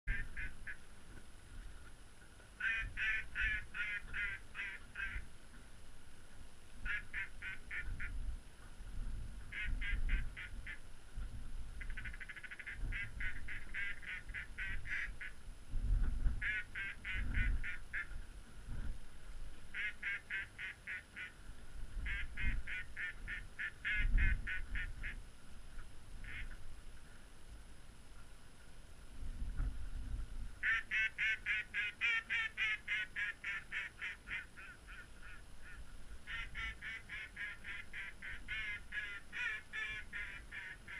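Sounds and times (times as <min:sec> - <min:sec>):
duck quacking: 0:00.1 - 0:00.8, 0:02.6 - 0:05.2, 0:06.8 - 0:08.1, 0:09.5 - 0:10.8, 0:11.8 - 0:15.3, 0:16.4 - 0:18.1, 0:19.8 - 0:21.3, 0:22.1 - 0:25.2, 0:26.2 - 0:26.5, 0:30.6 - 0:40.9
wind rumbling on microphone: 0:00.1 - 0:40.9.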